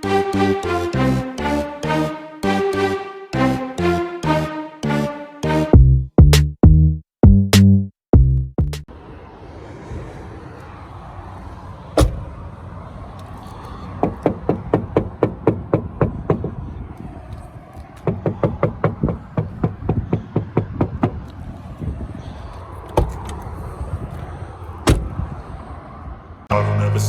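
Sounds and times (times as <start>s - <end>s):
knocking on car door: 14.0s - 16.5s, 18.0s - 21.2s.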